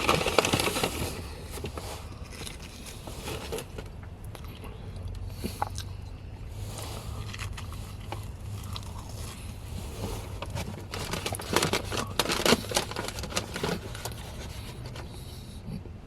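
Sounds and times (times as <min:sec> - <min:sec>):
crackly handling: 0:00.0 - 0:05.9, 0:06.8 - 0:15.4
crunchy chewing: 0:00.0 - 0:15.9
steady low hum: 0:00.0 - 0:16.0.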